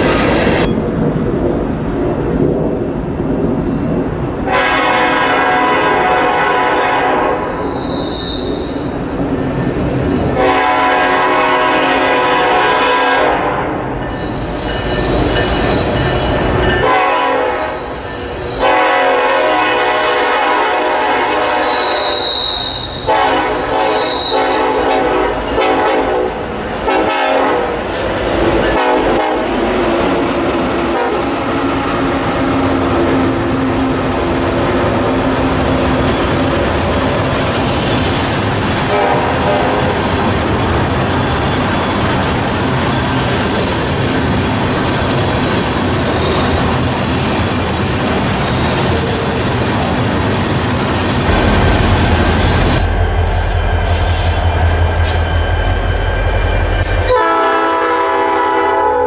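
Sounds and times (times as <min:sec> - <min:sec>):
train wheels rumbling on rail: 0:00.0 - 0:59.0
train horn blasts: 0:04.5 - 0:07.8, 0:10.3 - 0:13.8, 0:16.7 - 0:28.0, 0:28.7 - 0:29.6, 0:30.9 - 0:31.5, 0:38.9 - 0:40.1, 0:56.8 - 0:59.0.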